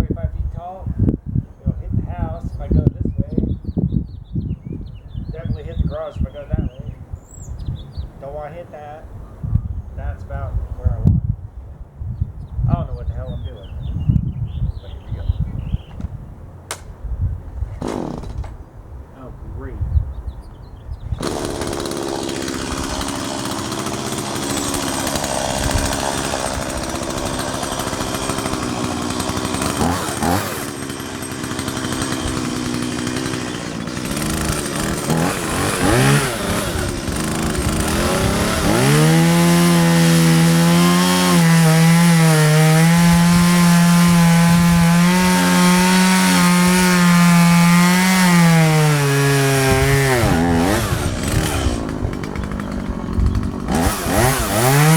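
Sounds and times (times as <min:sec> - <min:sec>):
chainsaw cutting wood: 0:17.7 - 0:18.6, 0:21.2 - 0:54.9.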